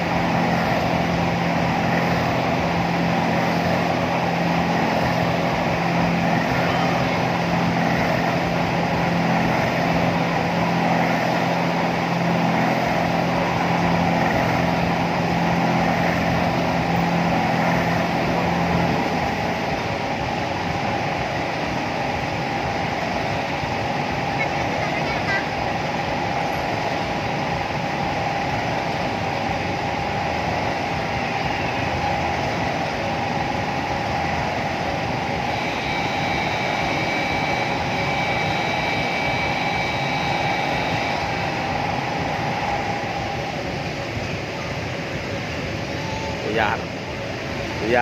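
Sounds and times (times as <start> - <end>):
amusement ride mechanical hum: 0.0 - 48.0
low pitched drone: 0.0 - 48.0.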